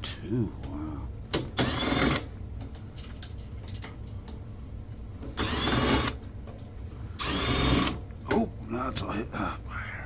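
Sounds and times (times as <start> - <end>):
power screwdriver motor: 1.6 - 2.3, 5.4 - 6.2, 7.2 - 8.0.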